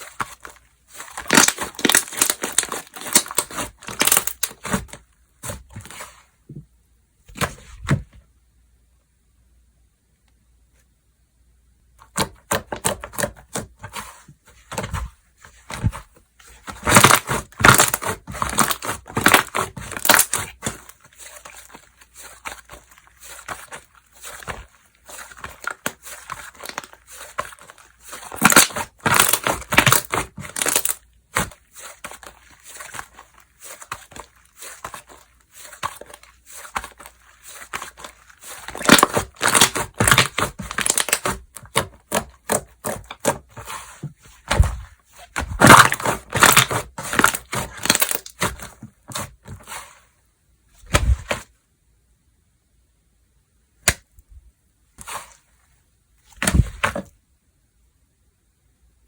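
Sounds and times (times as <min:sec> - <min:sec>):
hands squishing slime: 0:00.0 - 0:06.2, 0:12.1 - 0:49.9.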